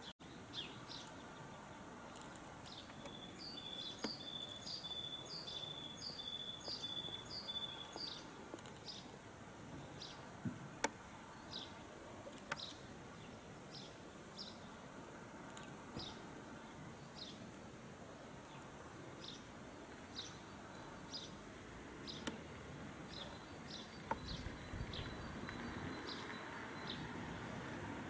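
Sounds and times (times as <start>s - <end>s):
high thin songbird notes: 2.6s - 9.1s.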